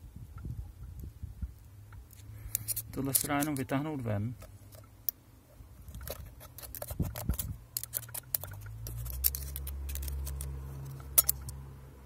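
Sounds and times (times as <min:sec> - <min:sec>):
small metal parts clinking: 0:02.4 - 0:03.8, 0:05.8 - 0:11.6.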